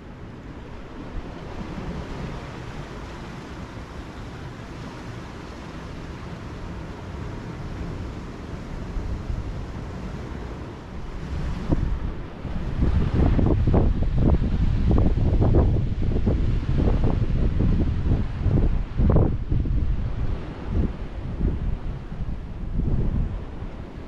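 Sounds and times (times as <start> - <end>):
ocean surf: 0.0 - 24.0
wind buffeting microphone: 7.1 - 24.0.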